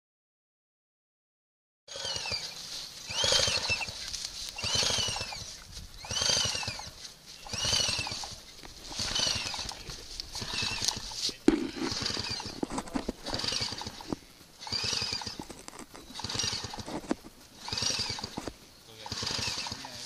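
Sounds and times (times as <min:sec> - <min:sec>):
two-stroke engine being turned over: 0:07.5 - 0:20.0.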